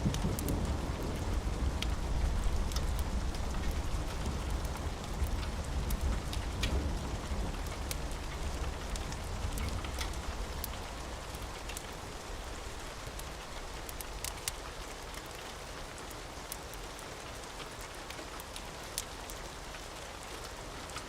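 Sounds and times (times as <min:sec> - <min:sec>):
low rumble of thunder: 0:00.0 - 0:14.4
steady rain: 0:00.0 - 0:21.0
wood fire crackling: 0:00.0 - 0:21.0.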